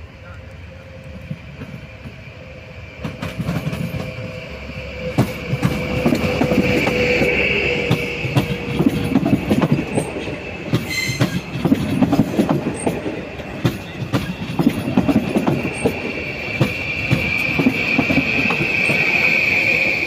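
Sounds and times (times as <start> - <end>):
train wheels clicking over rail joints: 0.5 - 20.0
high wheel squeal: 3.8 - 11.6, 12.6 - 20.0.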